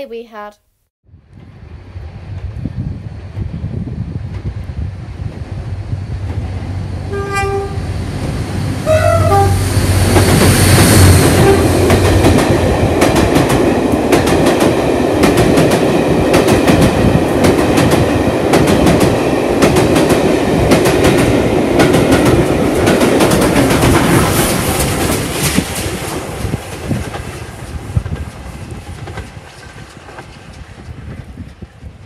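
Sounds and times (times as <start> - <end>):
locomotive engine droning: 4.7 - 12.2
train horn blasts: 7.1 - 7.9, 8.8 - 9.9, 11.2 - 11.9
train wheels clicking on rails: 9.6 - 32.0.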